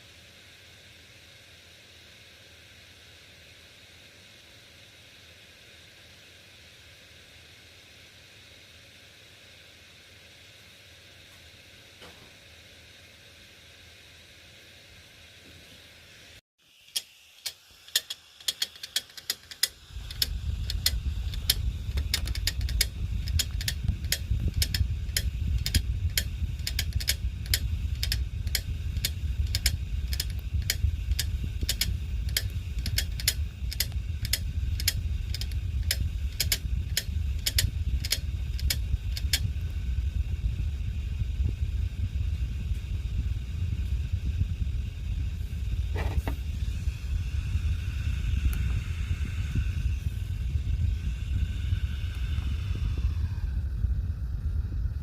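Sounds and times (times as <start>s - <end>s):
hard disk clicking: 16.9s - 39.6s
hard disk motor humming: 16.9s - 55.0s.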